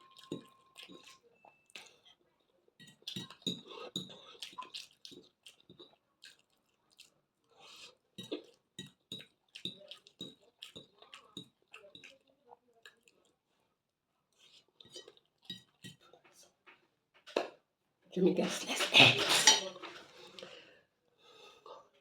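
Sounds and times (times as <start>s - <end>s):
cutlery and dishes clinking: 0.0s - 2.0s, 18.4s - 20.4s
person chewing: 0.0s - 2.2s, 2.8s - 13.6s, 14.3s - 16.5s.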